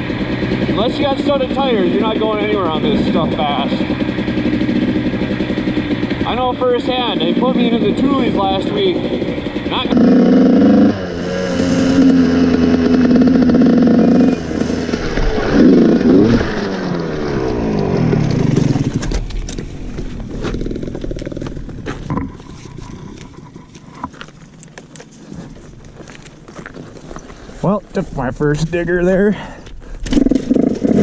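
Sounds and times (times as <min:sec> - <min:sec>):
dirt bike engine revving: 0:00.0 - 0:24.1, 0:30.0 - 0:31.0
bike scraping and clattering in snow: 0:11.4 - 0:27.8.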